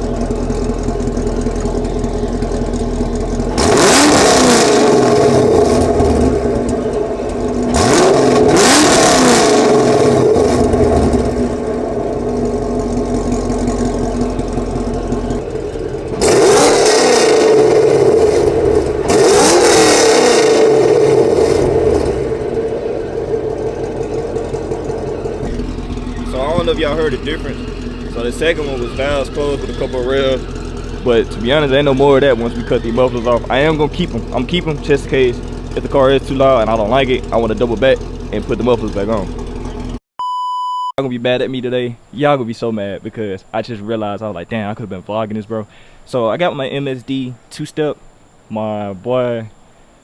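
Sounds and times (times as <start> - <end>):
car engine idling and revving: 0.0 - 40.0.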